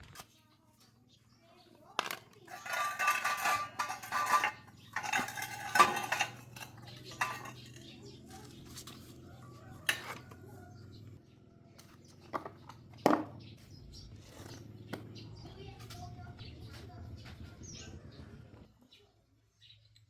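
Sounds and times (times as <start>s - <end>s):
metal tools clinking: 2.0s - 9.0s.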